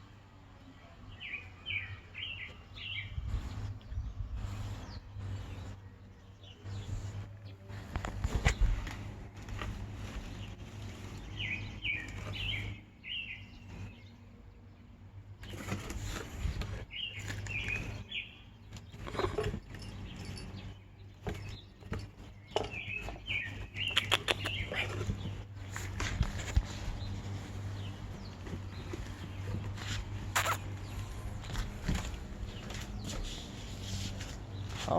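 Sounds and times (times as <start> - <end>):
small bird chirping: 16.9 - 34.9.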